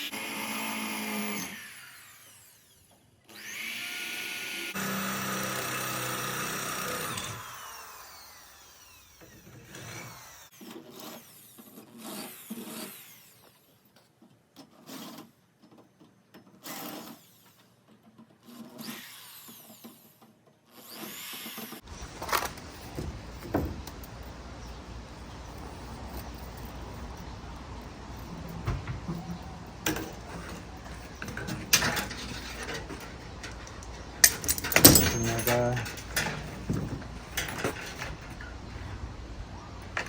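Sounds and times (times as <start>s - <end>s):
power drill spinning: 0.0s - 13.8s, 16.6s - 17.8s, 18.4s - 28.5s
handling knocks and clatter: 21.8s - 38.9s.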